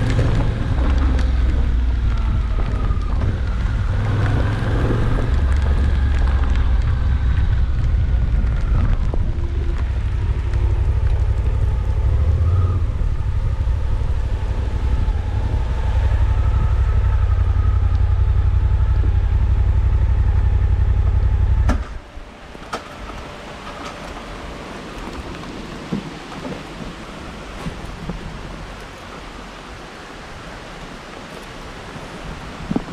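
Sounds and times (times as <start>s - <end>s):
motorcycle engine running: 0.0s - 22.2s
wind and road noise: 0.0s - 32.9s.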